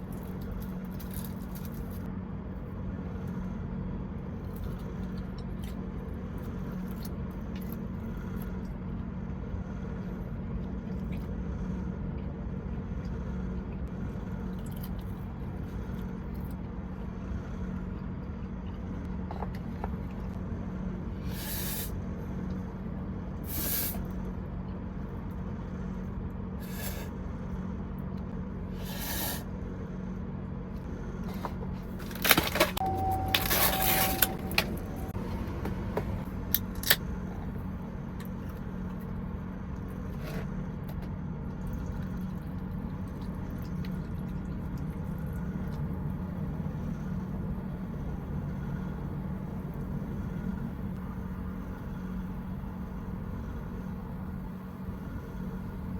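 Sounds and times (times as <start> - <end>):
truck engine idling: 29.5 - 41.4
handling scrapes and rustles: 31.2 - 35.2.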